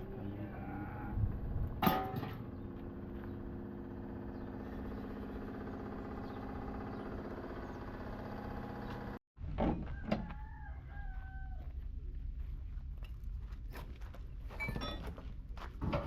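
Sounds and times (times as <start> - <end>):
steady machine hum: 0.0 - 9.2
rooster crowing: 9.8 - 11.8.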